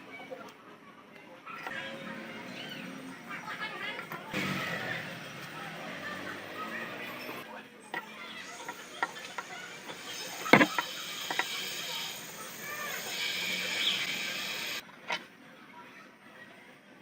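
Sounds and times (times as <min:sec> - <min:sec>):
steady hiss: 0:09.7 - 0:14.8
metal tools clicking and knocking: 0:10.4 - 0:11.5.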